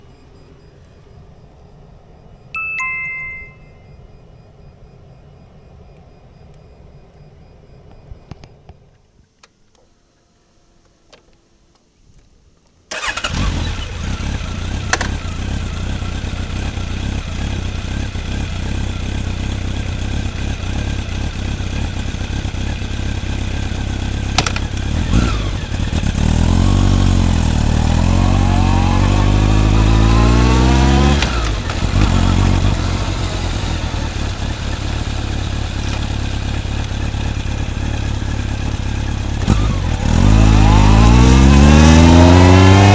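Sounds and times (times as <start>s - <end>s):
motorcycle engine idling and revving: 12.9s - 42.9s.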